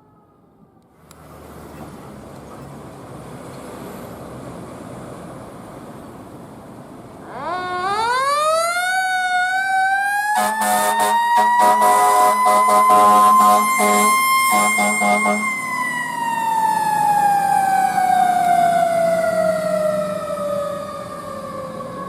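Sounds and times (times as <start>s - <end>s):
low traffic rumble: 0.0s - 22.0s
fire truck siren wailing: 7.2s - 22.0s
air horn blasts: 10.3s - 15.7s.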